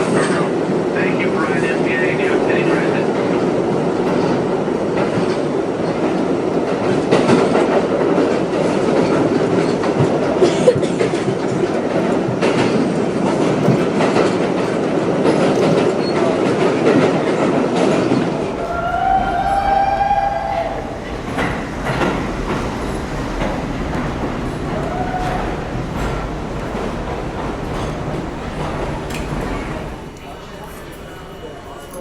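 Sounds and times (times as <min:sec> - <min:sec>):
wheels clicking over rail joints: 0:00.0 - 0:31.2
subway train rumble: 0:00.0 - 0:32.0.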